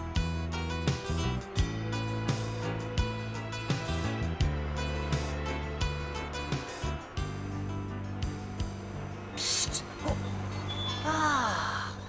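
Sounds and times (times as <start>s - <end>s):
held low instrumental notes: 0.0s - 11.5s.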